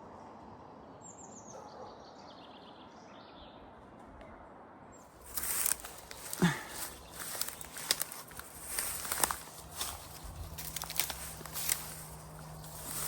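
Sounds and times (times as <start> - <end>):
quiet woodland background: 0.0 - 13.0
songbird singing: 5.0 - 13.0
footsteps through undergrowth: 5.1 - 13.0.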